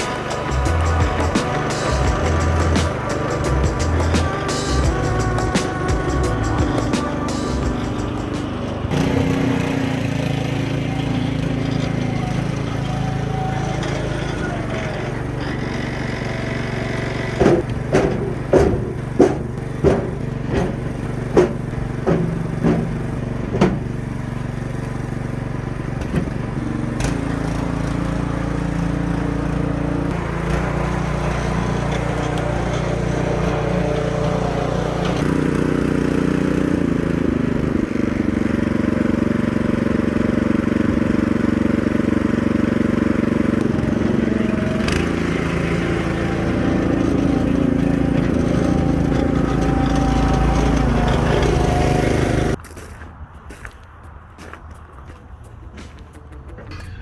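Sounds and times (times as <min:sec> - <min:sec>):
small gasoline engine running: 0:00.0 - 0:52.6
sharp knocks: 0:17.0 - 0:24.0.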